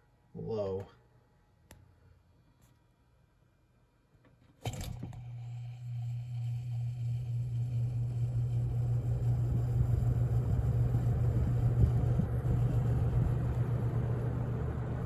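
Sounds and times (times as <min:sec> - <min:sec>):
box fan motor hum: 0:04.6 - 0:15.0.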